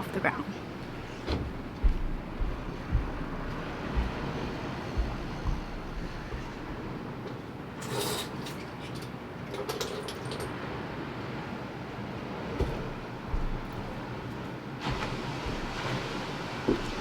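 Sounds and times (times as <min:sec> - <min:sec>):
wind: 0:00.0 - 0:17.0
wind buffeting microphone: 0:00.5 - 0:07.2
surf: 0:11.3 - 0:17.0.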